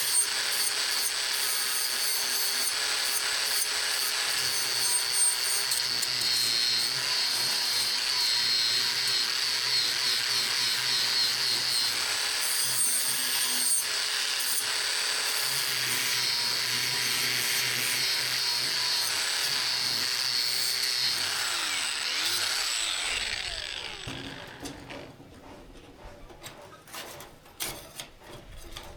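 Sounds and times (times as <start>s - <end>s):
electric power tool whining and grinding: 0.0s - 25.0s
power tool winding down: 4.9s - 24.8s.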